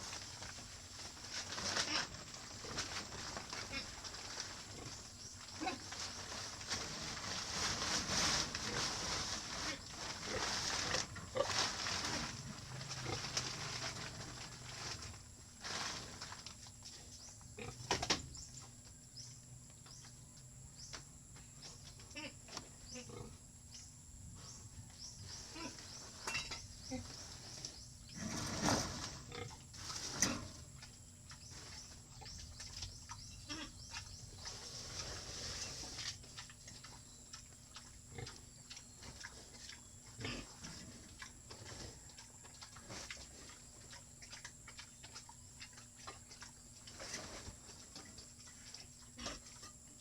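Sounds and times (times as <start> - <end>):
pigs grunting: 1.5 - 6.1, 8.2 - 14.6, 17.6 - 17.9, 22.0 - 23.4, 25.2 - 26.1, 33.2 - 47.6, 48.8 - 49.7.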